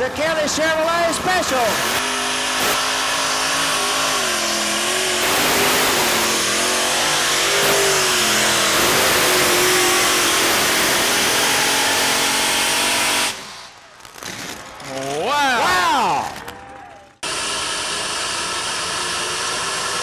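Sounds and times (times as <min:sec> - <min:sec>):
tractor engine revving loudly: 0:01.1 - 0:13.8, 0:17.2 - 0:20.0.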